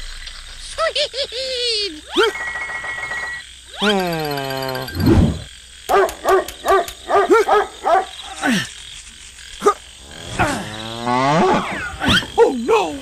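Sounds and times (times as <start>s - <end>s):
sharp click: 5.9s - 7.1s.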